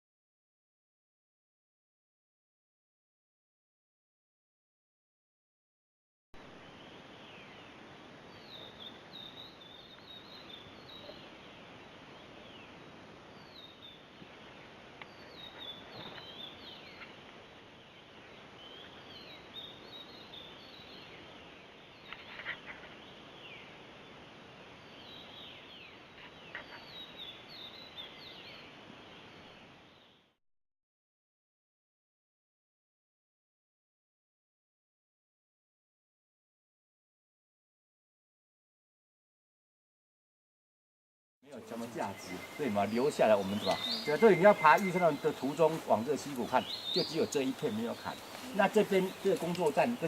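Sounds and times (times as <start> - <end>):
birds chirping: 6.4 - 30.3, 41.5 - 50.0
faint steady hiss: 6.4 - 30.4, 41.5 - 50.0.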